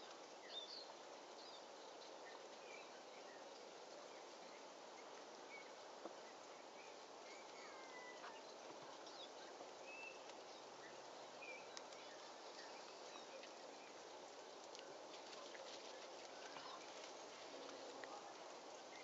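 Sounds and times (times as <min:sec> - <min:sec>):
background hiss: 0:00.0 - 0:19.0
faint bird chirps: 0:02.2 - 0:14.0
soft ticks: 0:11.7 - 0:12.1, 0:14.6 - 0:18.2.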